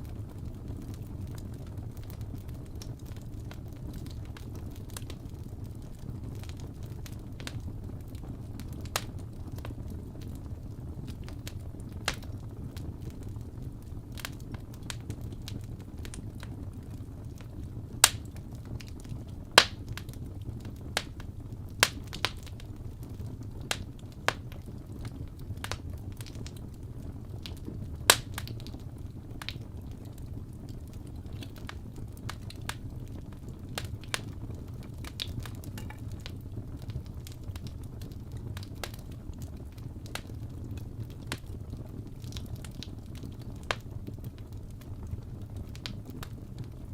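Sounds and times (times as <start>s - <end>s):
fire crackles and sharp pops: 0.0s - 46.9s
low rumble of flames: 0.0s - 46.9s.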